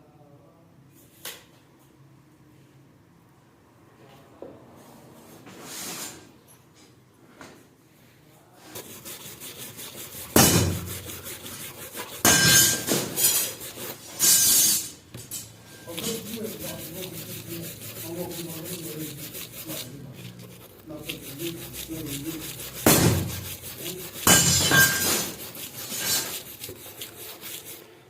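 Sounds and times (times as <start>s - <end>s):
sanding a steel blade: 8.8s - 15.0s, 15.8s - 27.9s.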